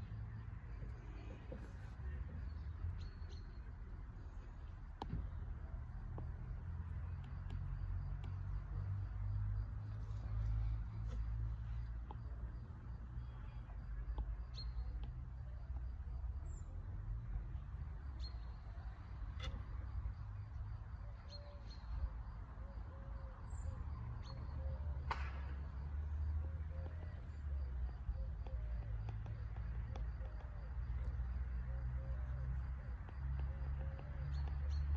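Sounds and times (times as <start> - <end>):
faint bird chirps: 0.0 - 12.4, 13.0 - 34.9.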